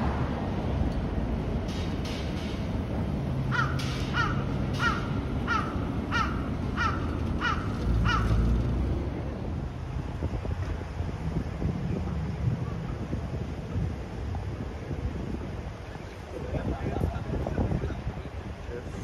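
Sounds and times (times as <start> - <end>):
city traffic hum: 0.0 - 19.0
bird calling: 3.5 - 8.5.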